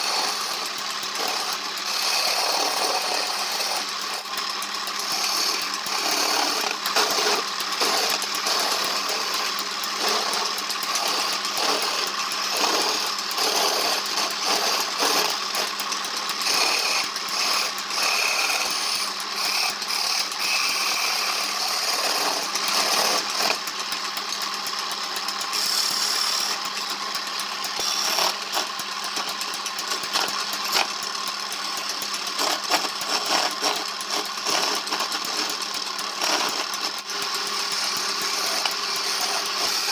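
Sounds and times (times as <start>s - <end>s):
power tool working on wood: 0.0s - 39.9s.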